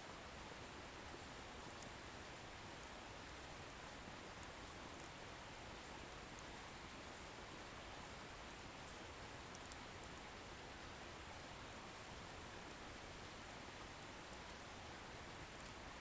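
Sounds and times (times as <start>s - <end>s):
faint fire crackles: 0.1s - 16.0s.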